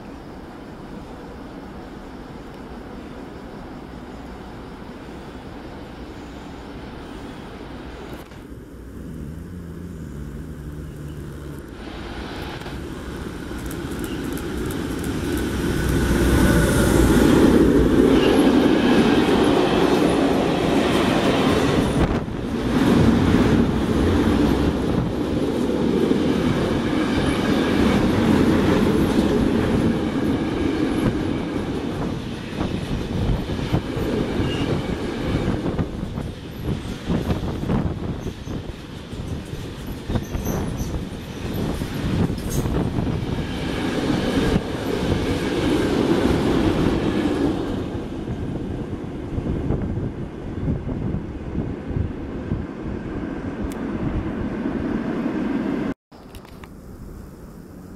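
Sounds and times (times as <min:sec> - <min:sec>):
electric locomotive passing: 0:00.0 - 0:56.0
freight wagons rumbling: 0:08.0 - 0:18.2
wheels clicking over rail joints: 0:12.4 - 0:16.6.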